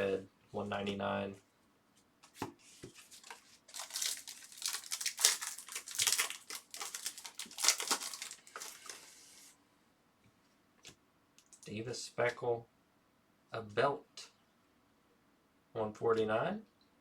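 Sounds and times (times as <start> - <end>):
wrappers crinkling and rustling: 2.9 - 9.5.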